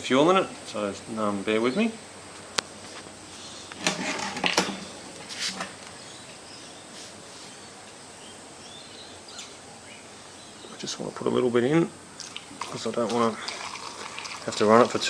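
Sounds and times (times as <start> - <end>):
clunks and scrapes: 3.7 - 5.8.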